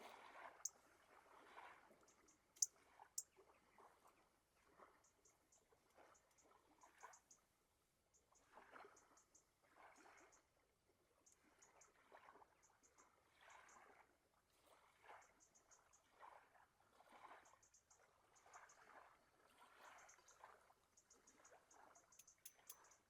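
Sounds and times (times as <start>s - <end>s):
water lapping: 16.0s - 17.5s, 18.4s - 23.0s.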